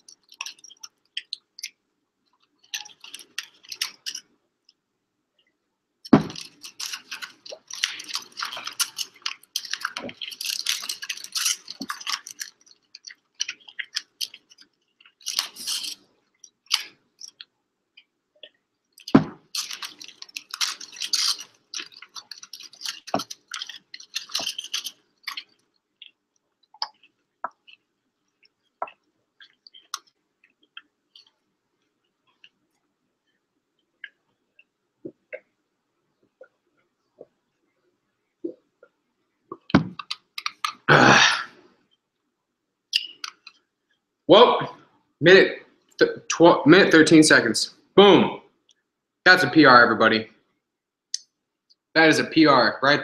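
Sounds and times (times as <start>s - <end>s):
aluminium foil crinkling: 0.0s - 1.7s, 2.5s - 4.2s, 6.2s - 17.4s, 19.0s - 25.6s
fast chewing: 0.0s - 4.2s, 6.1s - 17.5s, 19.0s - 31.4s, 39.5s - 40.9s.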